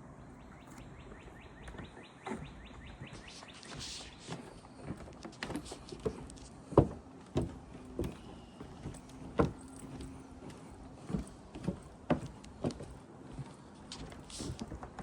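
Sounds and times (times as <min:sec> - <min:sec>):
footsteps walking: 0:00.8 - 0:15.0.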